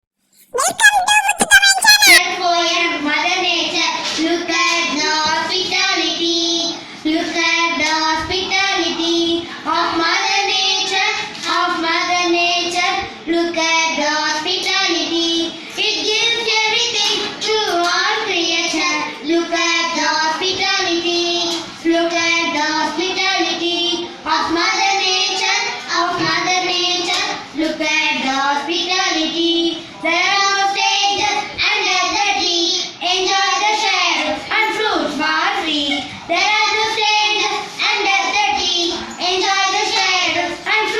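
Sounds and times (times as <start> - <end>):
child singing unaccompanied: 0.6 - 2.2, 4.2 - 40.9.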